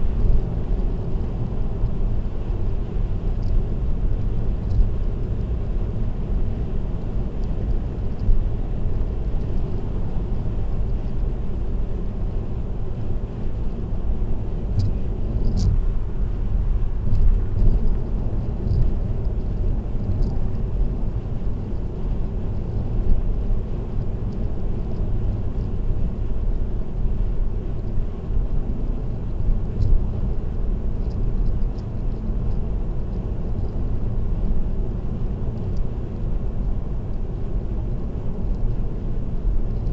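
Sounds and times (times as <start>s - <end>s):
car road and engine rumble: 0.0s - 39.9s
faint ticks: 14.8s - 15.8s, 18.6s - 20.4s, 31.0s - 32.6s.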